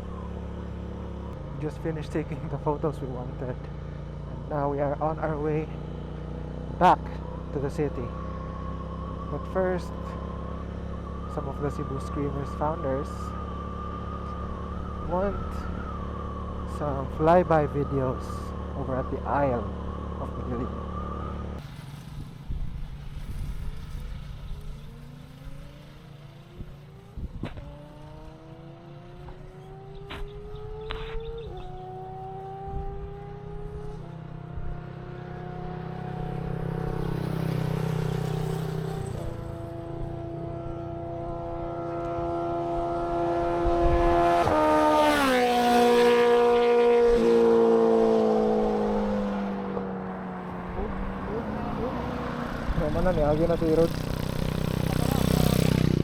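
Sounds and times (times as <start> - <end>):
motorcycle engine accelerating: 0.0 - 56.0
rushing wind: 21.5 - 25.8, 26.5 - 28.6, 29.3 - 56.0.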